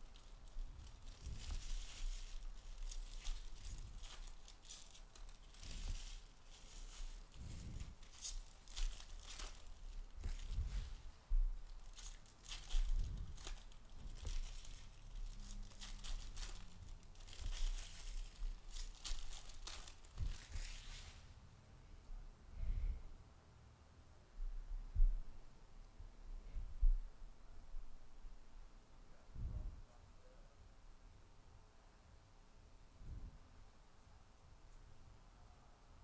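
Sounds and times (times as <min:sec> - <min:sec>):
foil wrappers tearing and crinkling: 0:00.0 - 0:10.6, 0:11.6 - 0:21.0
cards rustling: 0:00.0 - 0:11.0, 0:11.7 - 0:21.1.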